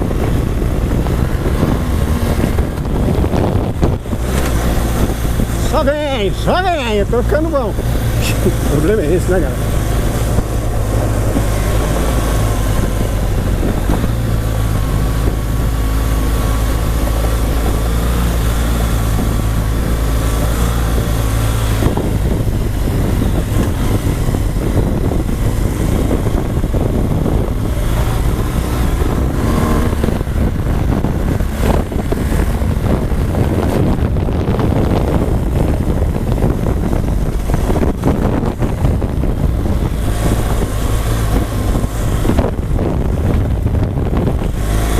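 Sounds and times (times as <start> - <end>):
motorcycle engine running: 0.0 - 44.9
wind on microphone: 0.0 - 44.9.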